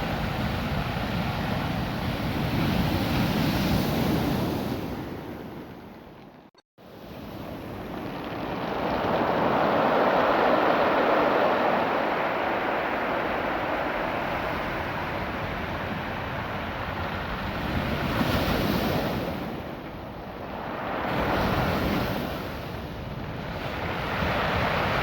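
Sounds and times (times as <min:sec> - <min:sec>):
surf washing over rocks: 0:06.9 - 0:25.0.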